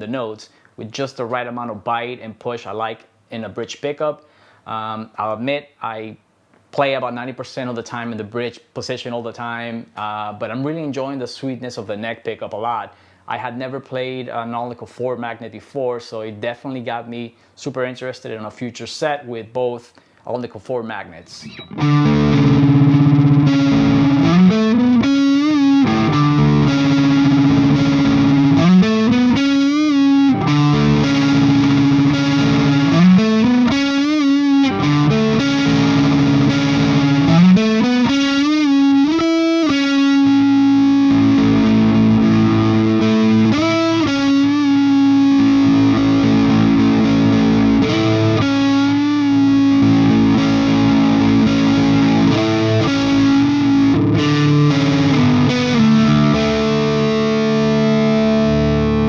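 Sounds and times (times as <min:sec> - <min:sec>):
overdriven electric guitar chords: 0:21.4 - 0:59.0.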